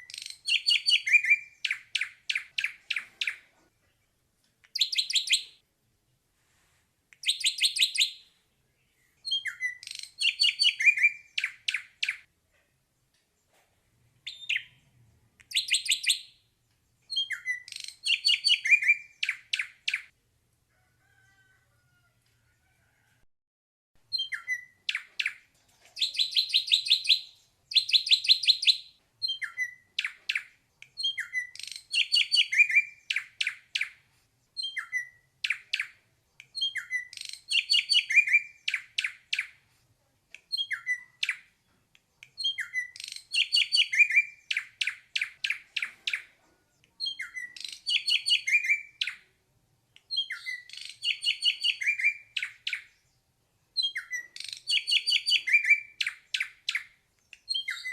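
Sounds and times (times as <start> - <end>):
bird singing whistled notes: 0.0 - 3.4, 4.8 - 5.6, 7.2 - 8.3, 9.2 - 12.2, 14.2 - 14.8, 15.5 - 16.4, 17.1 - 20.1, 24.1 - 25.4, 26.0 - 34.0, 34.6 - 35.9, 36.5 - 39.5, 40.5 - 41.4, 42.3 - 46.2, 47.0 - 49.2, 50.1 - 53.1, 53.8 - 57.9.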